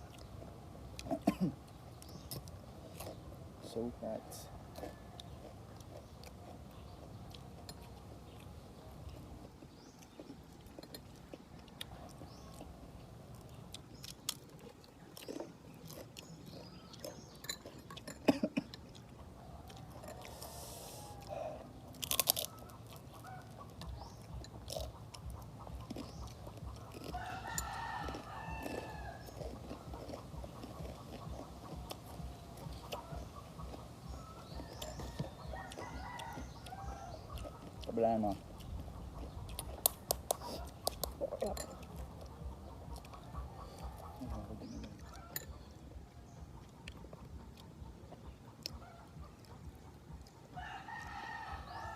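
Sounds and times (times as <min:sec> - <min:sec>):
chewing and crunching: 0:00.0 - 0:51.9
rooster crowing: 0:19.7 - 0:21.7, 0:27.0 - 0:29.5, 0:34.6 - 0:37.2, 0:50.6 - 0:51.9.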